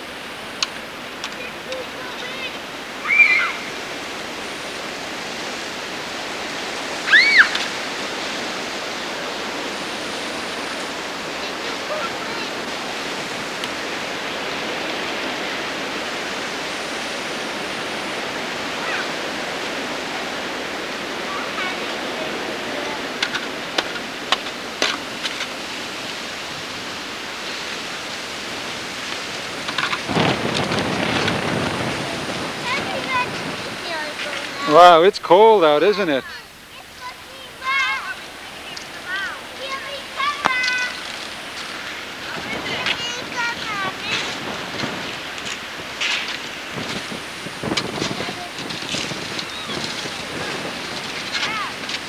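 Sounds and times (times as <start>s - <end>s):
wind on microphone: 0.0s - 35.4s, 37.6s - 52.0s
short high squeal: 7.0s - 7.6s.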